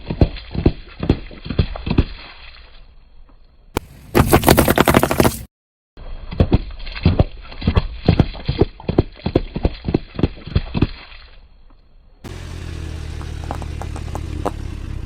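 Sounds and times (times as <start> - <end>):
objects crushed under car tyre: 3.8 - 5.5.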